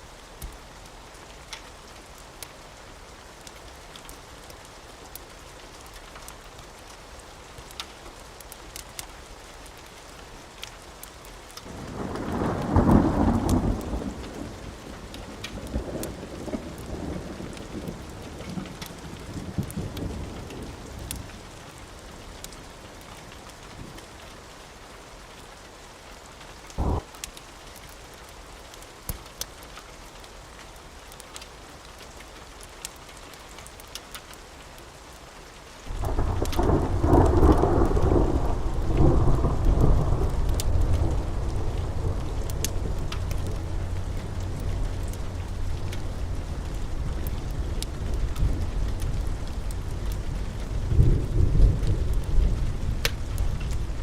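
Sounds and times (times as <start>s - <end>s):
steady rain: 0.0s - 54.0s
fireplace crackles: 0.1s - 12.7s, 13.4s - 54.0s
thunder rumbling: 11.6s - 21.0s, 26.8s - 27.1s, 35.9s - 54.0s.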